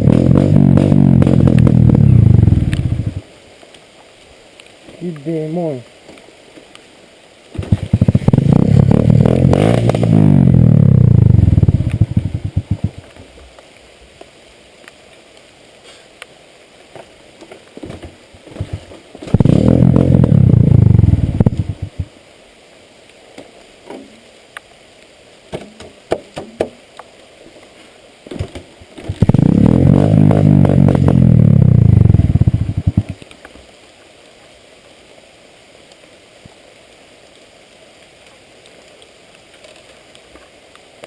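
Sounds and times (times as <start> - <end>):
motorcycle engines revving: 0.0 - 3.2, 7.6 - 13.0, 19.3 - 22.0, 29.1 - 33.2.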